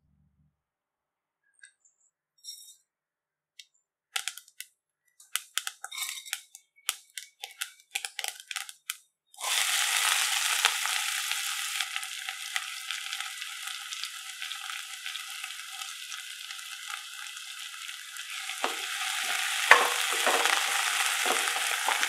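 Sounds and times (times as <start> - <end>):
onion sizzling in oil: 9.4 - 22.0
mustard seeds popping in oil: 18.3 - 22.0.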